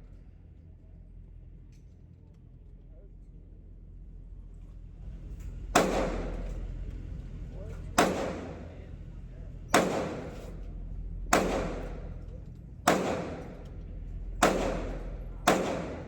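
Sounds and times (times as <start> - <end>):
pistol shots with echo: 5.7 - 6.6, 8.0 - 8.7, 9.7 - 10.6, 11.3 - 12.2, 12.8 - 13.8, 14.4 - 16.0.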